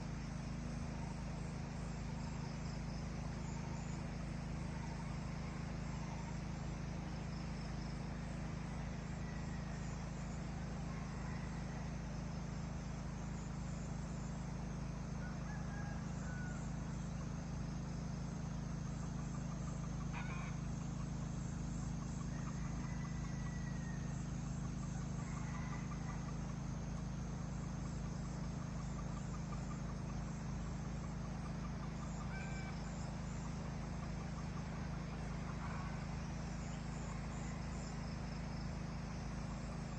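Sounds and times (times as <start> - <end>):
low steady rumble: 0.0 - 39.9
birds calling: 19.2 - 24.2
chickens calling: 20.0 - 20.6, 31.2 - 37.9.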